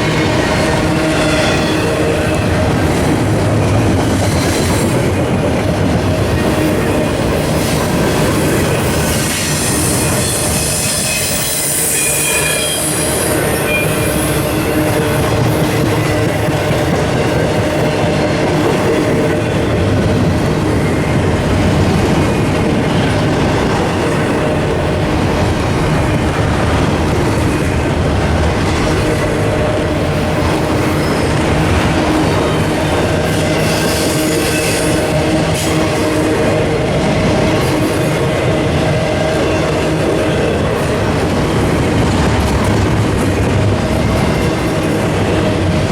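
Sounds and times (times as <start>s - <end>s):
train wheels rumbling: 0.0s - 45.9s
high wheel squeal: 8.9s - 16.5s.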